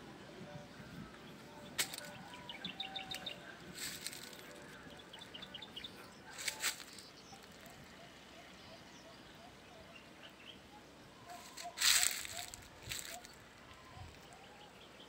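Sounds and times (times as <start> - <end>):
small birds chirping: 0.6 - 15.0
rustling: 3.8 - 4.8, 6.3 - 7.7, 11.3 - 13.4.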